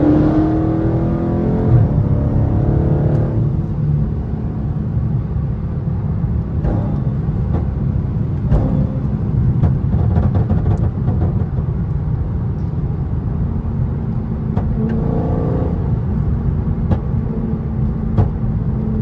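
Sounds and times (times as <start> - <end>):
car engine accelerating: 0.0 - 19.0
exhaust pops: 6.5 - 12.0.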